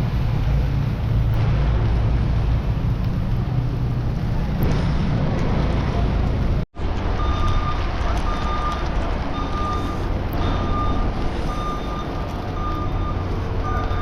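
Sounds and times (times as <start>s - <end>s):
low rumble: 0.0s - 14.0s
reversing alarm beeping: 7.2s - 14.0s.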